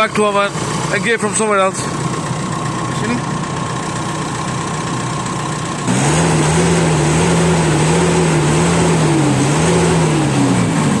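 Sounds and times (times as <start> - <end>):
diesel engine revving: 0.0 - 11.0.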